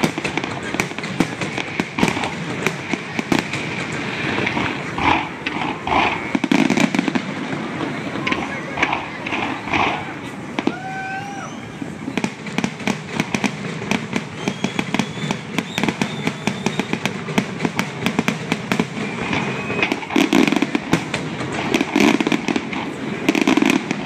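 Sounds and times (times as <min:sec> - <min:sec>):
fireworks crackling and banging: 0:00.0 - 0:24.0
fireworks whistles rising in pitch: 0:08.1 - 0:12.7, 0:14.0 - 0:17.2, 0:18.6 - 0:20.8.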